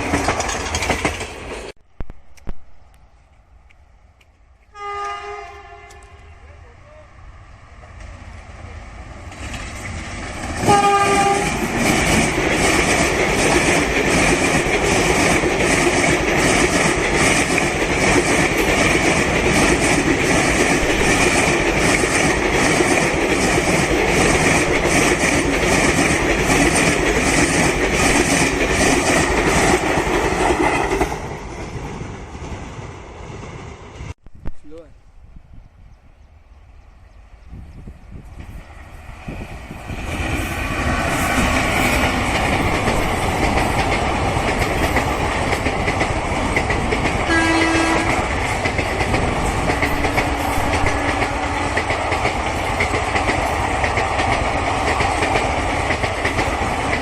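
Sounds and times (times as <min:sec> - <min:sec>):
wheels clacking over rail joints: 0:00.0 - 0:01.8, 0:09.2 - 0:32.8, 0:39.9 - 0:57.0
train passing at speed: 0:00.0 - 0:34.2, 0:34.8 - 0:57.0
train horn: 0:04.6 - 0:06.6, 0:10.6 - 0:11.7, 0:47.3 - 0:48.2, 0:50.0 - 0:51.7.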